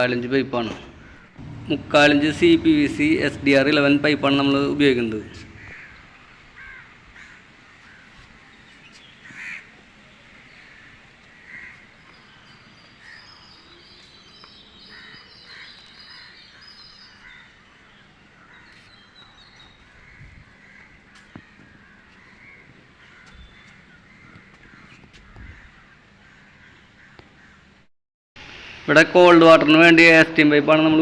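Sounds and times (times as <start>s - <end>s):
crows cawing: 0.9s - 1.5s, 5.3s - 8.3s, 9.2s - 9.8s, 10.4s - 12.3s, 12.9s - 13.7s, 14.8s - 19.0s, 19.7s - 27.8s
small birds chirping: 5.1s - 27.6s.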